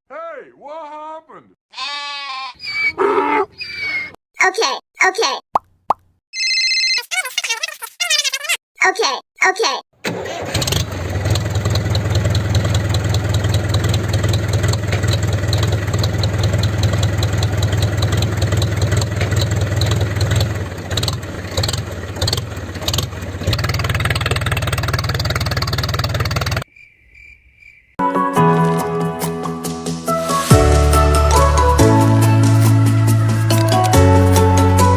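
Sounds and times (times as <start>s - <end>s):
small tractor motor running: 10.1s - 26.6s
music: 28.0s - 34.9s.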